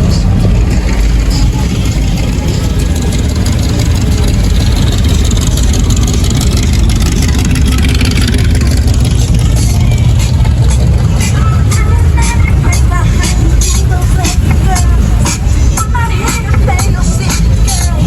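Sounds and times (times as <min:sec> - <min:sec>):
car engine deep rumble: 0:00.0 - 0:18.0.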